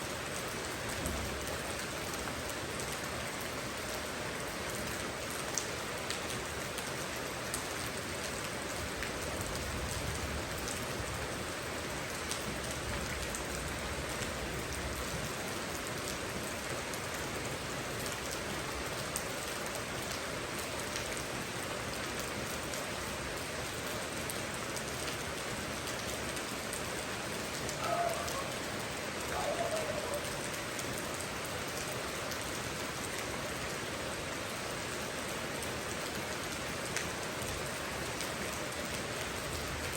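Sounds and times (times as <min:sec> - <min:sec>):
steady rain falling: 0:00.0 - 0:39.9
short pitched calls: 0:27.8 - 0:28.6, 0:29.3 - 0:30.4.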